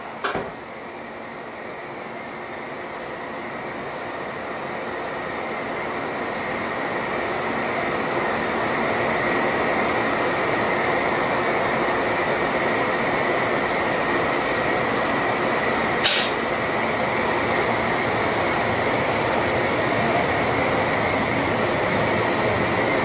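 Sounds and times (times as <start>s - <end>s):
train running noise: 4.7s - 23.0s
high whine: 12.0s - 23.0s.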